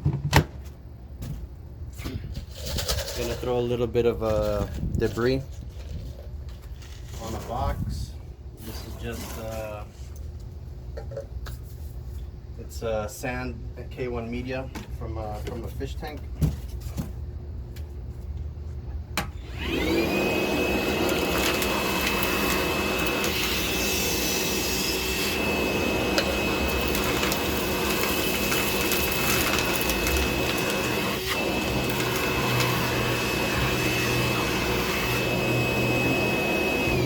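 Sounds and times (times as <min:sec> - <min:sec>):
vacuum motor whining: 0:19.4 - 0:37.0.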